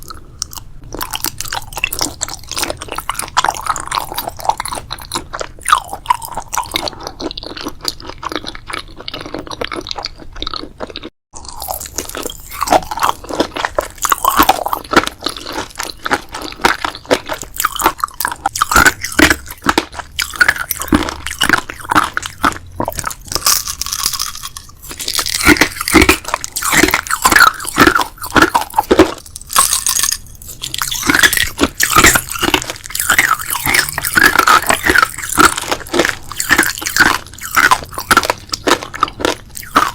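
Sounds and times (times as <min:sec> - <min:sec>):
chewing crisp food: 0:00.0 - 0:39.9.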